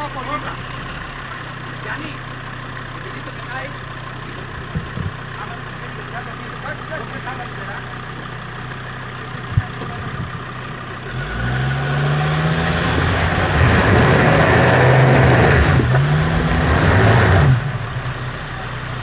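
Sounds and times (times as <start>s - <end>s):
off-road vehicle engine revving: 0.0s - 19.0s
gritty rushing noise: 11.1s - 18.6s.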